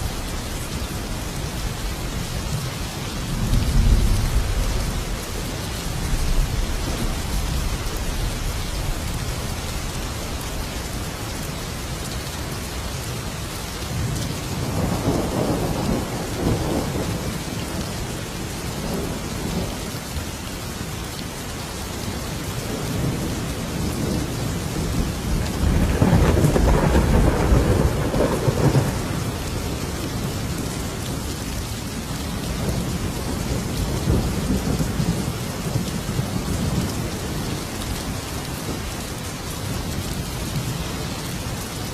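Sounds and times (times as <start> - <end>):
heavy rain: 0.0 - 41.9
rolling thunder: 14.0 - 17.8, 22.8 - 30.7.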